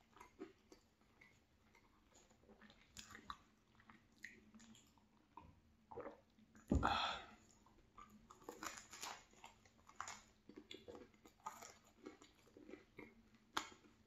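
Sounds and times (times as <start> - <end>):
chewing mouth sounds: 0.0 - 6.3
thump: 6.7 - 7.0.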